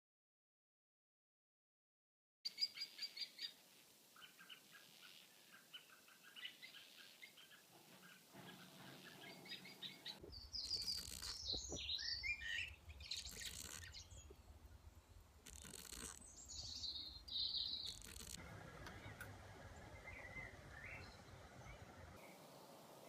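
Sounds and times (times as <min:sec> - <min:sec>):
birds chirping and singing: 0:04.2 - 0:18.4, 0:19.0 - 0:22.9.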